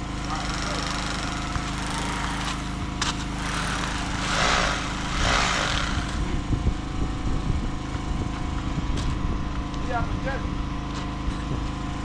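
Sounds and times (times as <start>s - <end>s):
small motor humming: 0.0s - 6.7s.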